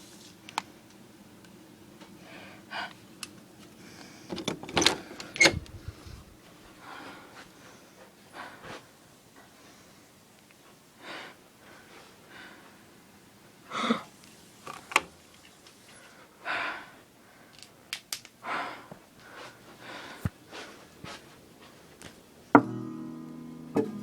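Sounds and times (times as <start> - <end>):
person panting heavily: 5.1 - 8.9, 16.2 - 17.6, 18.4 - 20.9.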